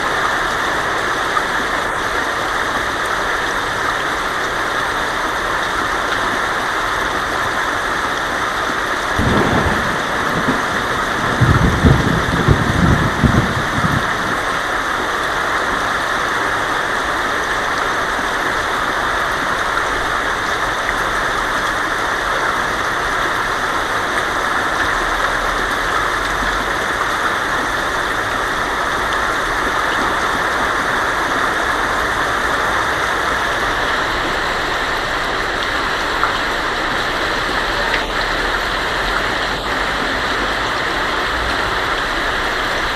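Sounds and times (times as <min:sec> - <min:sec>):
heavy rain on a tin roof: 0:00.0 - 0:42.9
thunder rumbling: 0:09.1 - 0:14.9.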